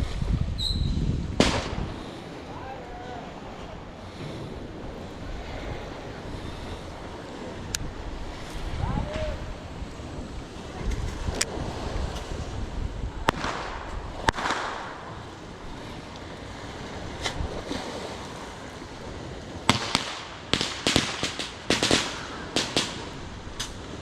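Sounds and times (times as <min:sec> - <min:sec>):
fireworks rumble: 0:00.0 - 0:24.0
fireworks crackling pops: 0:00.6 - 0:02.2, 0:13.2 - 0:15.4, 0:19.6 - 0:24.0
fireworks bangs: 0:01.4 - 0:02.0, 0:13.2 - 0:15.3, 0:19.6 - 0:23.8.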